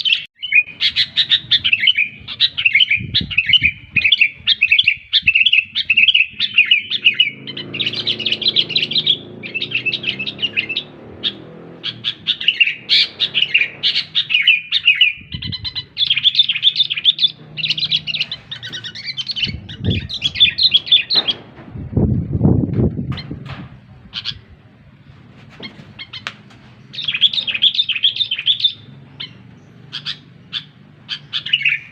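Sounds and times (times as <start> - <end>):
bird chirping song: 0.0 - 31.9
low thuds: 17.3 - 24.1.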